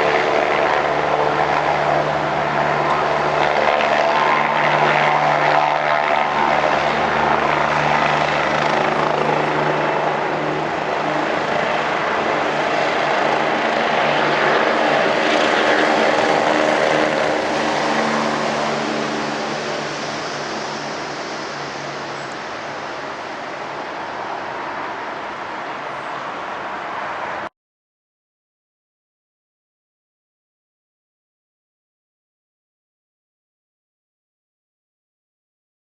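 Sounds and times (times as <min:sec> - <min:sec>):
helicopter rotor and engine: 0:00.0 - 0:27.5.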